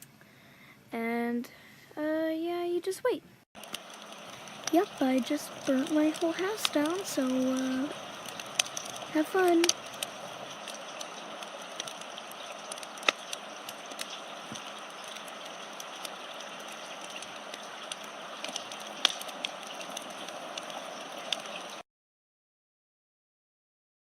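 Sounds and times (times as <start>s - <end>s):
fire crackling and popping: 3.6s - 21.8s.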